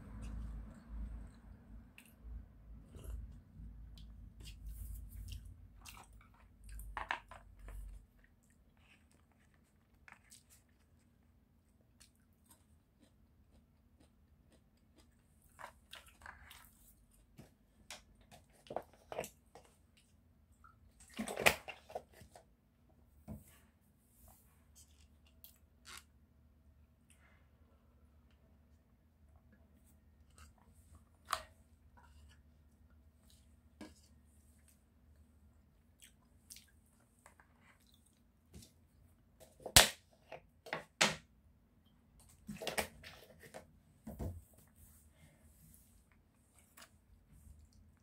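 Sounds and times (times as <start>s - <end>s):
chewing with wet mouth sounds: 11.8s - 16.9s, 35.6s - 38.4s.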